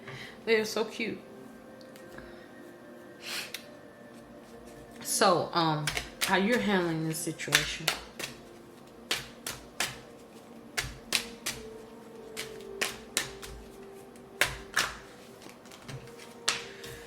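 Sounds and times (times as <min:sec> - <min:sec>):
cards clicking and tapping on table: 0:05.8 - 0:06.7, 0:07.5 - 0:08.4, 0:09.1 - 0:10.0, 0:10.8 - 0:11.7, 0:12.4 - 0:13.7, 0:14.4 - 0:17.0.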